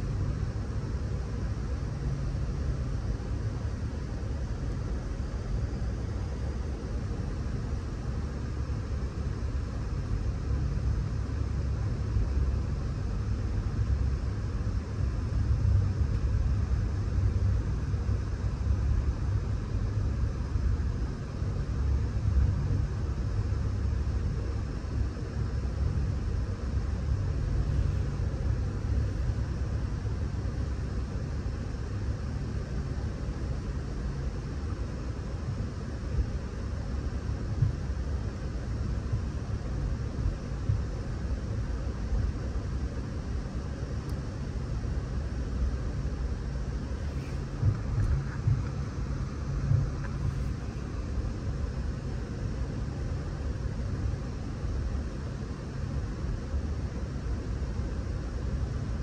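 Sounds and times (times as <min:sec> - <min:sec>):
train rumbling on track: 0:47.0 - 0:50.9.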